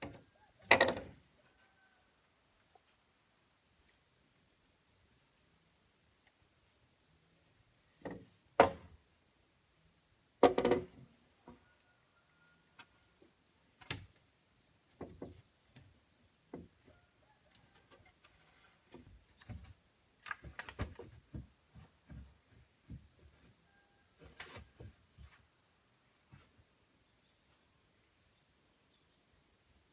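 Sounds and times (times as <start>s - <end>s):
wooden knocks and thuds: 8.0s - 9.0s, 10.4s - 11.6s, 14.9s - 15.9s, 18.9s - 23.6s.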